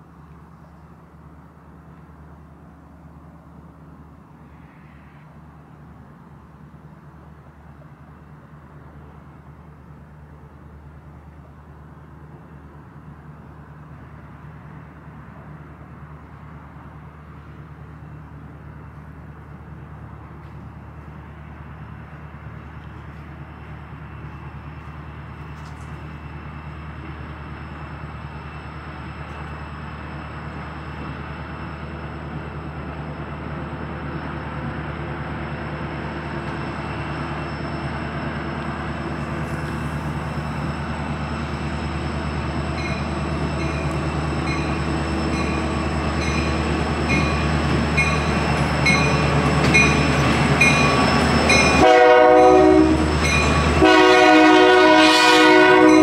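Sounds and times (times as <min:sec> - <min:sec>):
train rumble: 0:00.0 - 0:56.0
train horn blast: 0:51.7 - 0:56.0.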